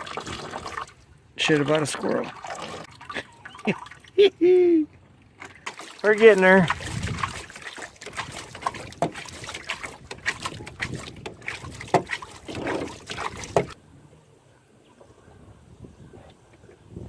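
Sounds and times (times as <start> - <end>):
water splashing: 0.0 - 13.8
knocks and clatter in boat: 5.4 - 13.8.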